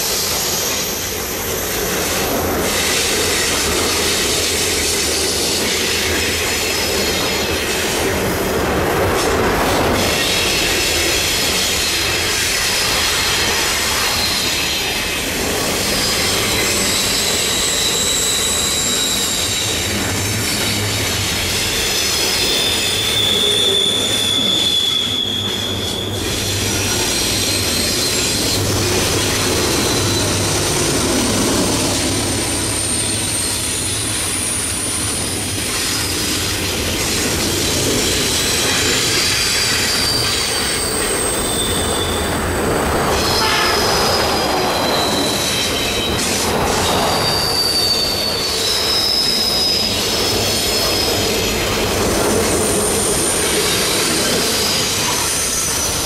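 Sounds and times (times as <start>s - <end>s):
freight train wheels rumbling: 0.0s - 56.0s
high-pitched wheel squeal: 15.8s - 36.5s, 37.9s - 56.0s.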